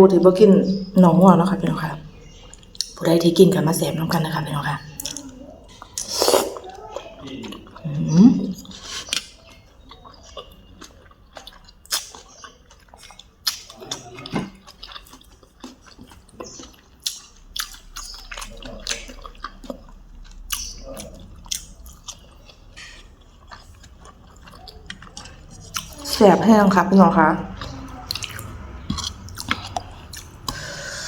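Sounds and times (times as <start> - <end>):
wet chewing and mouth clicks: 2.2 - 3.0, 4.9 - 26.2, 26.9 - 30.9.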